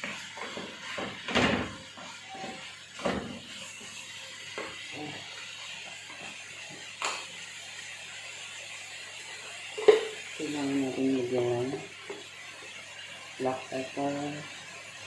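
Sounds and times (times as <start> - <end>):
kitchen utensils knocking and clinking: 9.8 - 10.2.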